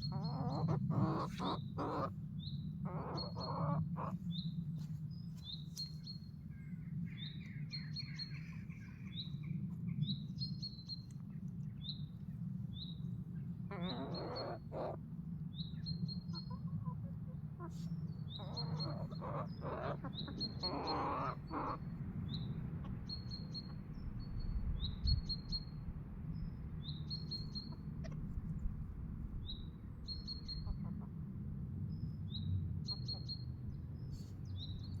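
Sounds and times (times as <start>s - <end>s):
harsh bird calls: 0.0s - 4.5s, 13.7s - 15.0s, 15.8s - 23.8s
bird chirping: 0.0s - 12.1s, 12.7s - 28.2s, 29.4s - 31.1s, 31.9s - 35.0s
steady low hum: 0.0s - 35.0s.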